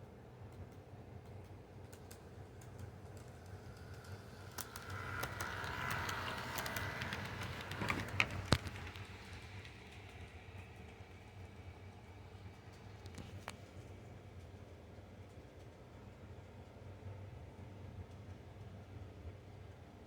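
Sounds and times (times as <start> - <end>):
toy train wheels clicking: 2.0 - 11.7
toy train motor whirring: 3.2 - 11.0.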